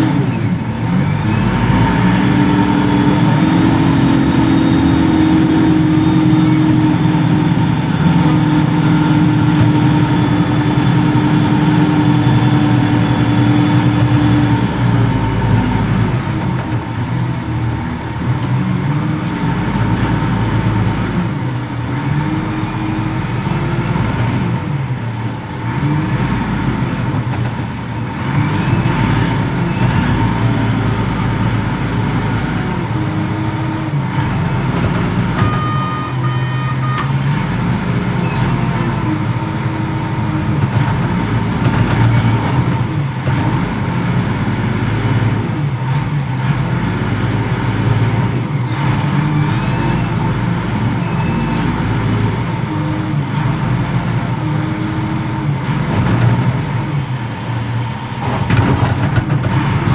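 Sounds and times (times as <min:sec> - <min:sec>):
diesel engine under load: 0:00.0 - 0:59.9
short electronic beep: 0:35.4 - 0:37.2.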